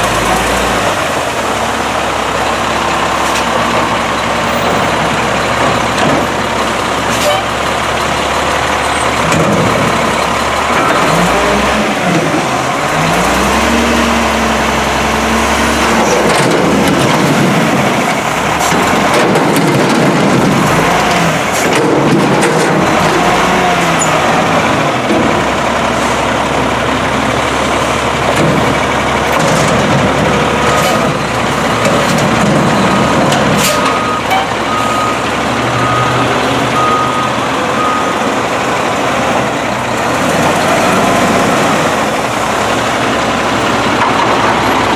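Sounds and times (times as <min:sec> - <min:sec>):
truck diesel engine revving: 0:00.0 - 0:44.9
reversing beeper: 0:32.7 - 0:38.5.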